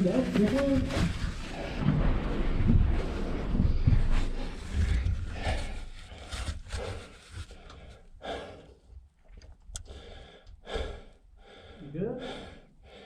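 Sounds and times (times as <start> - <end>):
person breathing hard: 3.0 - 8.9, 9.8 - 13.0.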